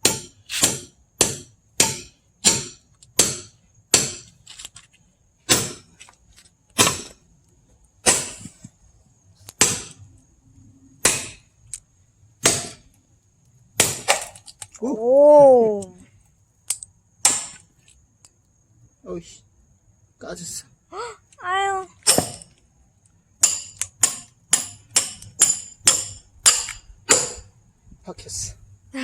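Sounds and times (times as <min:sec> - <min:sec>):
hammer striking metal wedge: 0:00.0 - 0:04.3, 0:05.5 - 0:05.9, 0:06.8 - 0:07.2, 0:08.0 - 0:08.5, 0:09.6 - 0:10.0, 0:11.0 - 0:11.4, 0:12.4 - 0:12.8, 0:17.2 - 0:17.6, 0:22.1 - 0:22.5, 0:23.4 - 0:27.5.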